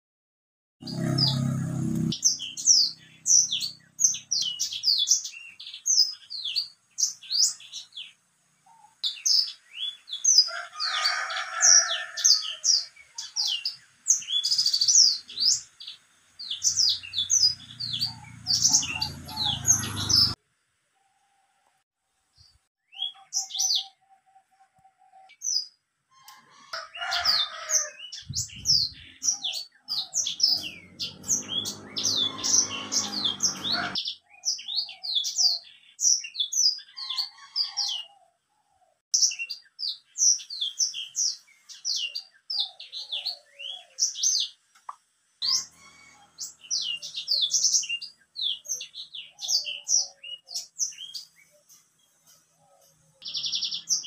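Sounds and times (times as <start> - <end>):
canary singing: 0.8 - 20.4, 25.3 - 38.2, 45.4 - 54.0.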